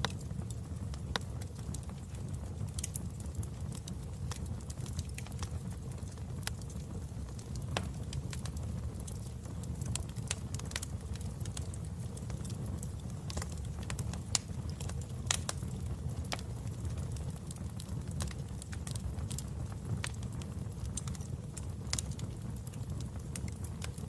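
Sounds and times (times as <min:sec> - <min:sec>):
sharp pops of fire: 0:00.0 - 0:24.0
wood fire crackling: 0:00.0 - 0:24.0.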